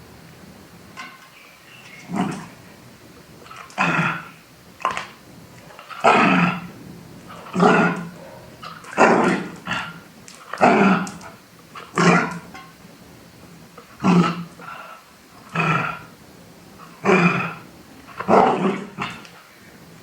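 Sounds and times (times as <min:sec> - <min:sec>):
dog barking: 0:05.9 - 0:06.7, 0:07.4 - 0:10.0, 0:18.2 - 0:19.2.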